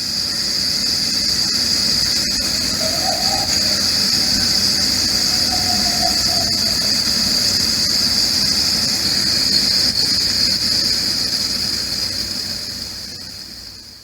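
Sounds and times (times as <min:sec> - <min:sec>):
high-pitched drone: 0:02.2 - 0:08.2.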